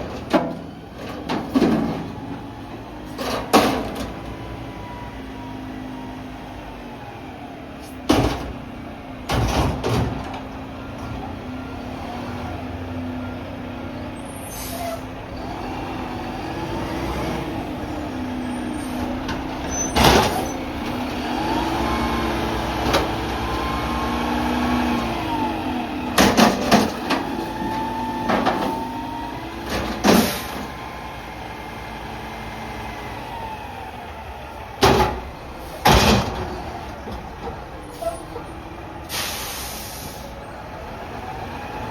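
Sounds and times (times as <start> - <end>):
garbage truck engine running: 0.0 - 41.9
air brake hissing: 14.3 - 15.1, 39.0 - 40.4.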